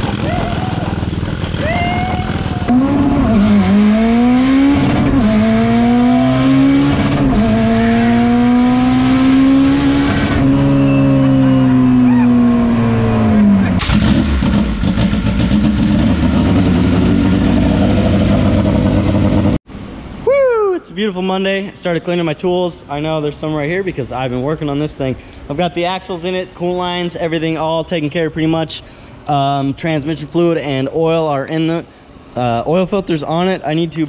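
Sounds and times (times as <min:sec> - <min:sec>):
race car engine revving: 0:00.0 - 0:19.6
rough noisy engine: 0:00.0 - 0:19.6
small motorbike engine: 0:00.0 - 0:19.6.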